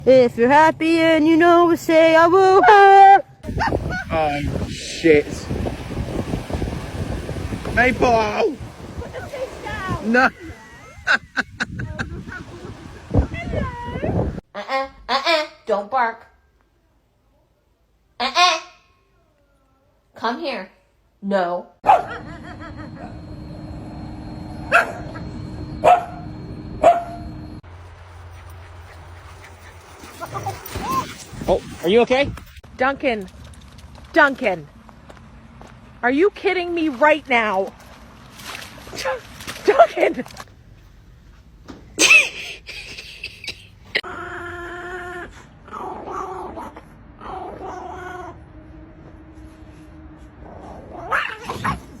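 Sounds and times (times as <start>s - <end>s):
dog whining: 3.5s - 4.1s, 28.9s - 31.4s, 50.5s - 52.0s
dog yelping: 3.5s - 4.1s, 24.6s - 27.5s, 28.3s - 31.5s, 50.9s - 52.0s
dog barking: 21.8s - 22.2s, 24.7s - 25.2s, 25.8s - 27.3s
steady hum: 21.8s - 30.0s, 48.1s - 50.9s.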